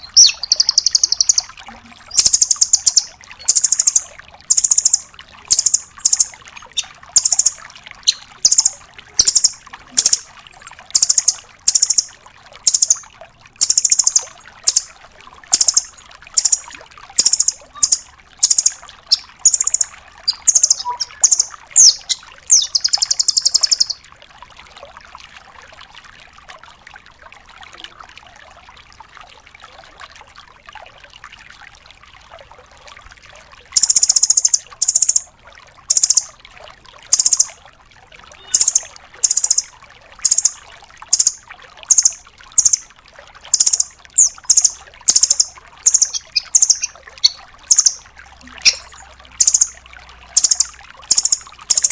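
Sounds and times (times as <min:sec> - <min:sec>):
bird calling high sharp notes: 0:00.0 - 0:10.2, 0:11.0 - 0:12.1, 0:12.7 - 0:13.0, 0:13.6 - 0:14.9, 0:15.5 - 0:24.0, 0:33.8 - 0:35.2, 0:35.9 - 0:36.3, 0:38.4 - 0:42.8, 0:43.5 - 0:49.8, 0:50.4 - 0:51.9
bird trill: 0:00.0 - 0:10.3, 0:11.0 - 0:13.0, 0:13.6 - 0:14.9, 0:15.5 - 0:24.0, 0:33.8 - 0:35.2, 0:35.9 - 0:36.3, 0:37.1 - 0:37.5, 0:38.4 - 0:42.9, 0:43.5 - 0:49.8, 0:50.4 - 0:51.9.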